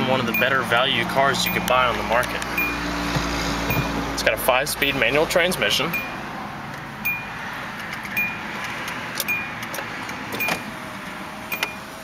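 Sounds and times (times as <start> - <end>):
dashboard warning beep: 0.2 - 0.8, 1.4 - 1.9, 2.5 - 2.9, 3.6 - 4.1, 5.9 - 6.2, 7.0 - 7.4, 8.1 - 8.6, 9.2 - 9.6, 10.4 - 10.7, 11.5 - 11.9.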